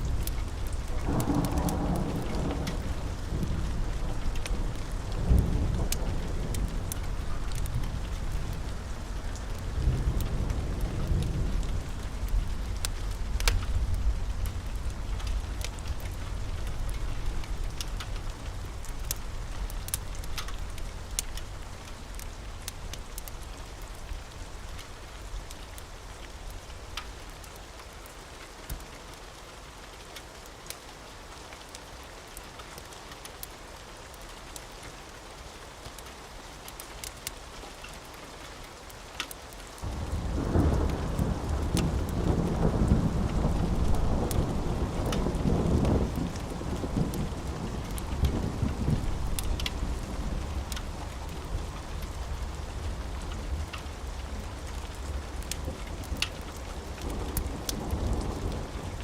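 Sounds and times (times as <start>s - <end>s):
thunder rumbling: 0.0s - 21.7s, 39.8s - 59.0s
wood fire crackling: 0.0s - 29.2s, 35.5s - 59.0s
steady rain: 0.0s - 59.0s.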